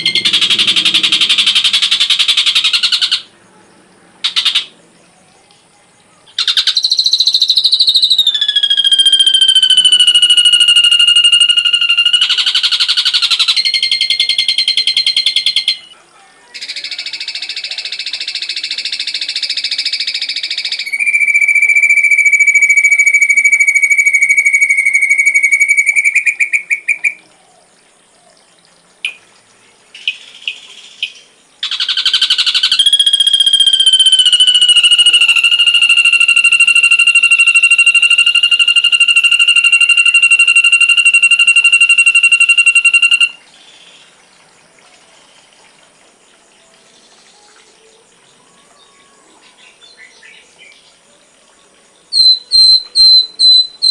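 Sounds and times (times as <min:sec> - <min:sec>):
bird call whistle-like tone: 0:00.0 - 0:03.3, 0:06.4 - 0:15.9, 0:16.6 - 0:27.2, 0:31.6 - 0:43.4, 0:52.1 - 0:53.9
short bird chirps: 0:52.2 - 0:53.9.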